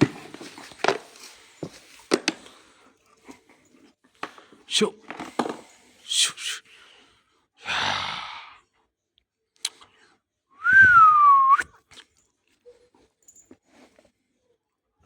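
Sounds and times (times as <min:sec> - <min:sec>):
person whistling: 0:10.6 - 0:11.8.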